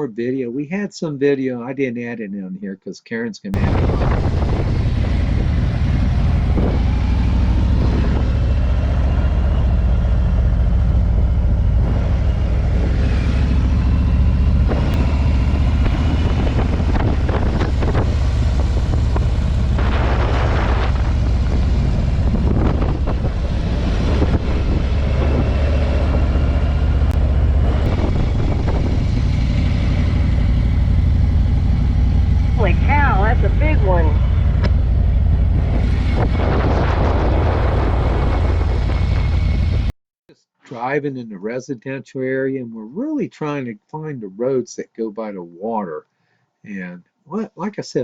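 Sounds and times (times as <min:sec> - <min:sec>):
motorcycle engine rumbling: 0:03.6 - 0:39.9.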